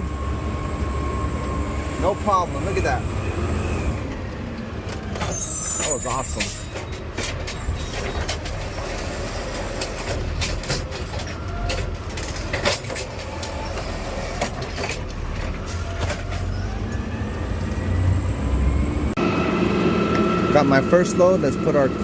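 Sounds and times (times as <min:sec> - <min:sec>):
garbage truck engine running: 0:00.0 - 0:22.0
clanks and knocks of cart: 0:04.8 - 0:17.0.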